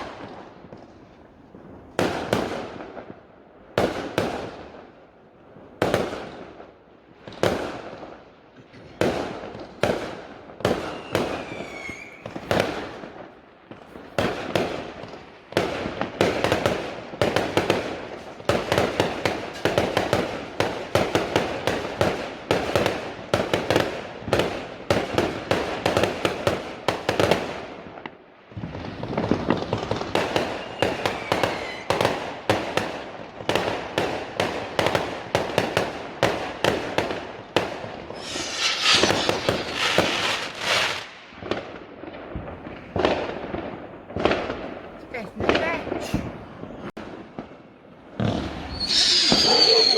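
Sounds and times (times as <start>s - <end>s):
fireworks bangs: 0.0s - 5.0s, 5.6s - 49.9s
falling whistle: 10.9s - 12.3s, 38.1s - 40.3s, 48.7s - 49.9s.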